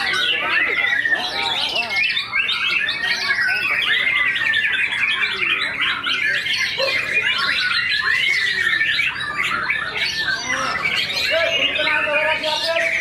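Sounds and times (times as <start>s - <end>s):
birds singing chirps and trills: 0.0s - 13.0s.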